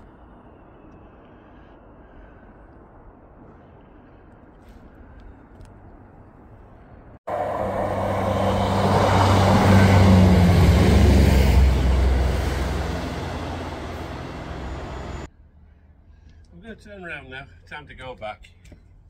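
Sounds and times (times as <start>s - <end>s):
train wheels rushing: 7.3s - 15.3s
diesel train engine drone: 7.3s - 15.8s.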